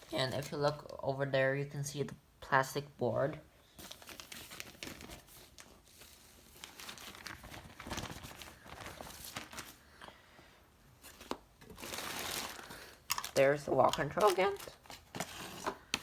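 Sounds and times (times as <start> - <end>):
packaging crinkling and rustling: 3.8 - 9.9, 11.0 - 16.0.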